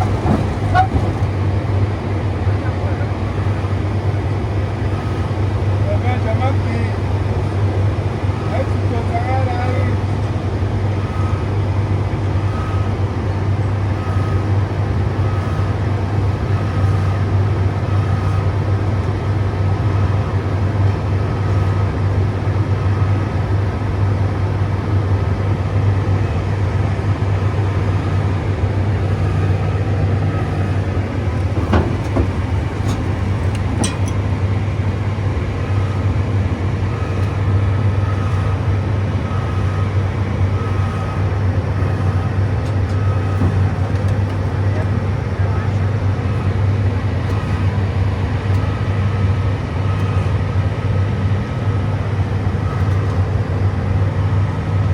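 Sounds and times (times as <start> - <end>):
excavator diesel engine drone: 0.0 - 54.9
sharp knocks: 30.4 - 34.2.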